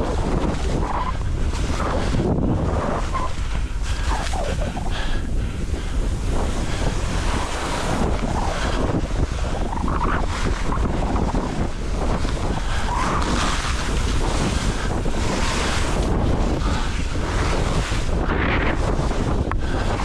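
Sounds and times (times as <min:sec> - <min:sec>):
wind rushing over microphone: 0:00.0 - 0:20.0
skis hissing through snow: 0:06.2 - 0:11.3, 0:12.8 - 0:18.0.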